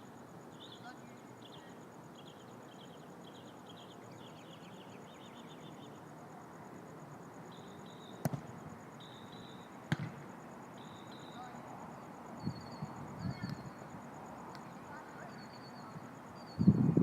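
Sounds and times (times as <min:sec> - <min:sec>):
insects and birds chirping: 0:00.0 - 0:17.0
soccer ball kick thump: 0:08.2 - 0:08.6, 0:09.9 - 0:10.2.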